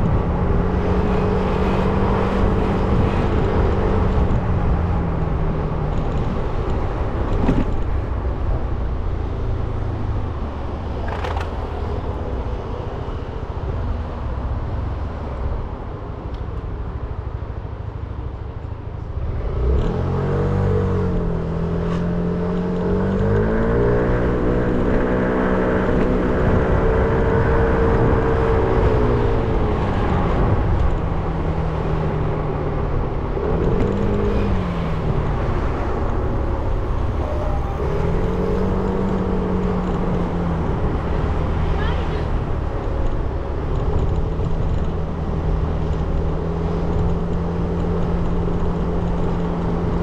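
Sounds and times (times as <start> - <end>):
low road rumble: 0.0 - 50.0
motorcycle engine revving: 33.3 - 42.4.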